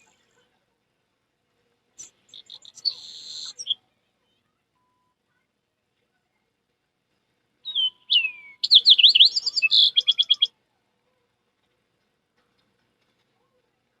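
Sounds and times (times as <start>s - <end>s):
bird song with trill: 2.0s - 3.8s, 7.6s - 10.5s.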